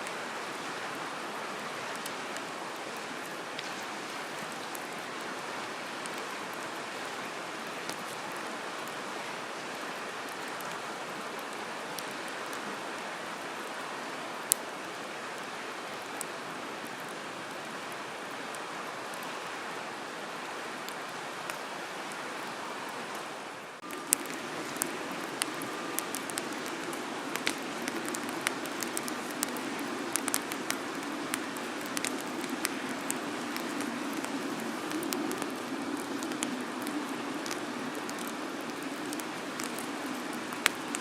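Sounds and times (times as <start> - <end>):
campfire crackling: 0.0 - 41.0
sharp pops of burning wood: 23.8 - 39.9.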